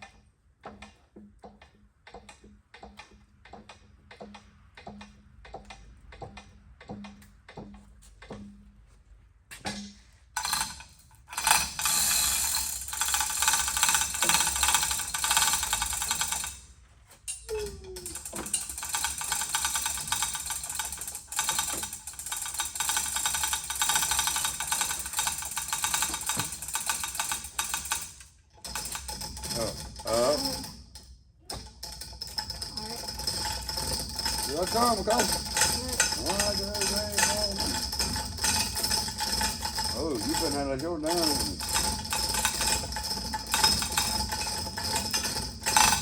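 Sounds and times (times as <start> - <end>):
chain hoist rattling and clicking: 9.7 - 46.0.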